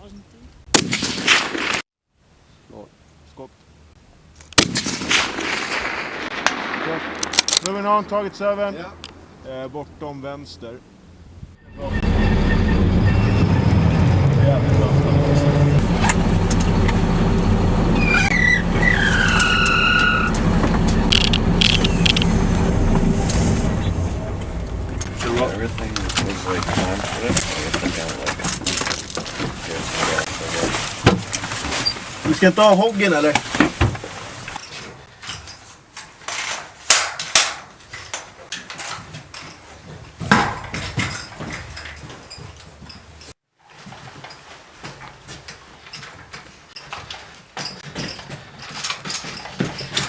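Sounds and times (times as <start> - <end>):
high falling squeal: 11.6 - 15.8, 17.9 - 25.2
vehicle engine running: 12.0 - 19.4, 20.1 - 30.6
sharp clicks: 21.1 - 22.3
hard objects knocking and clattering: 25.0 - 31.8, 39.0 - 43.1.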